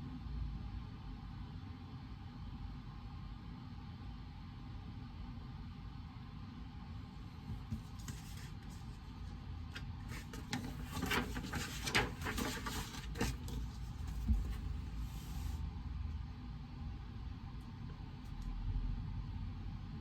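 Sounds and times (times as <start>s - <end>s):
low room hum: 0.0s - 20.0s
desk handling rustles and clicks: 10.1s - 14.8s.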